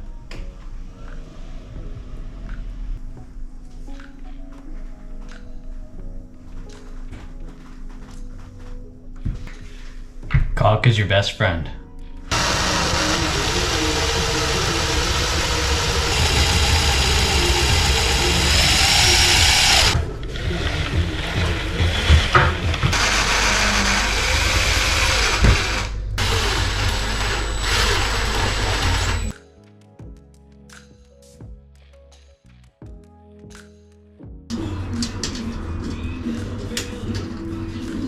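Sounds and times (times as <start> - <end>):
background music: 0.0 - 26.6, 28.4 - 38.0
power tool motor running: 12.3 - 29.4.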